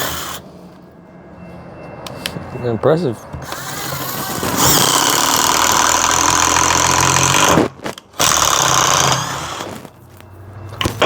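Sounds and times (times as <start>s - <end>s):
cordless impact driver running: 3.5s - 9.8s.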